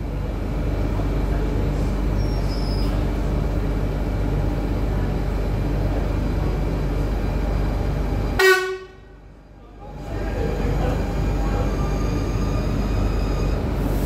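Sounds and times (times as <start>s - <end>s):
train rumbling into platform: 0.0s - 14.0s
train horn toot: 8.4s - 9.2s.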